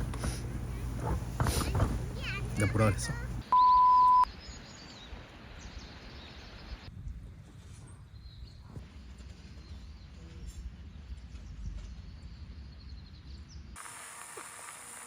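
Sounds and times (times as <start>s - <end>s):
high hiss of insects: 13.8s - 15.0s.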